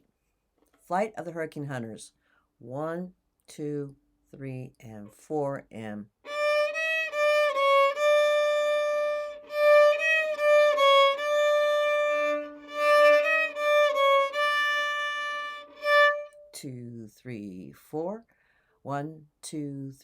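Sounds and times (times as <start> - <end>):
violin slow melody: 6.3 - 16.6.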